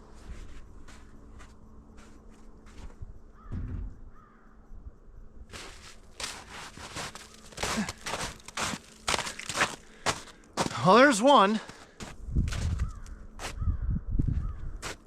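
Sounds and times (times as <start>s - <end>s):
low thump: 3.5s - 4.2s
boots crunching through snow: 5.5s - 13.6s.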